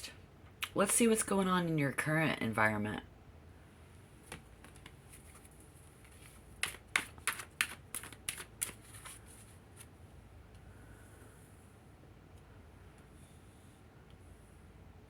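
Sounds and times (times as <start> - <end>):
cards being shuffled: 4.2 - 9.9.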